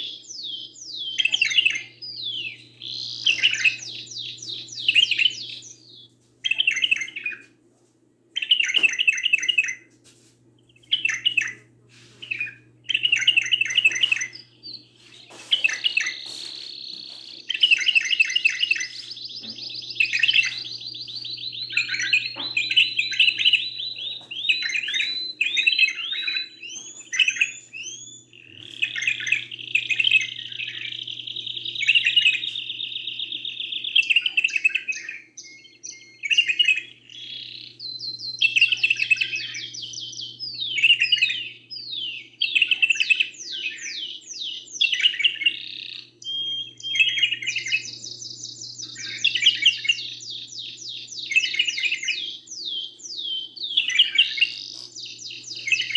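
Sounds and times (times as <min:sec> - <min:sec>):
songbird singing trills: 0:00.0 - 0:07.5, 0:08.4 - 0:55.9
faint steady hum: 0:00.0 - 0:55.9.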